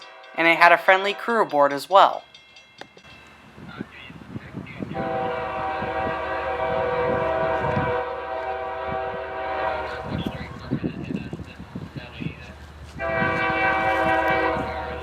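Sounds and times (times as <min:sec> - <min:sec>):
freight train rumbling past: 0:00.0 - 0:15.0
locomotive air horn chord: 0:04.8 - 0:10.6, 0:13.0 - 0:15.0.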